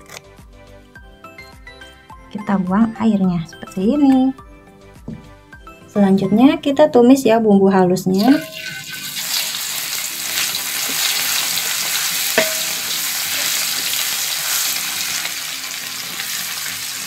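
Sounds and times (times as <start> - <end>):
metal spatula clinking on wok: 8.2 - 9.5, 12.3 - 14.0
paste sizzling in hot oil: 8.2 - 17.0.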